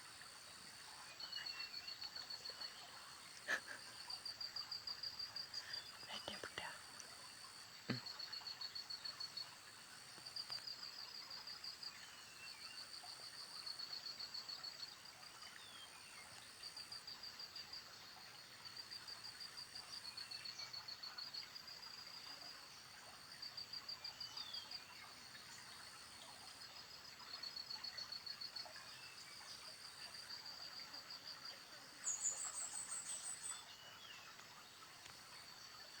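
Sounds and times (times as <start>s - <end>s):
faint bird chirps: 0.8s - 4.3s, 5.4s - 7.2s, 27.2s - 36.0s.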